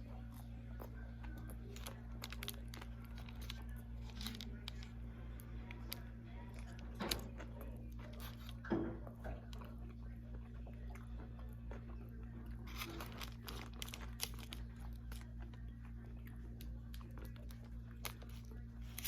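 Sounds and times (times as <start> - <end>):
low electrical hum: 0.0 - 19.0
paper wrapper crinkling: 1.4 - 5.0, 12.6 - 15.4.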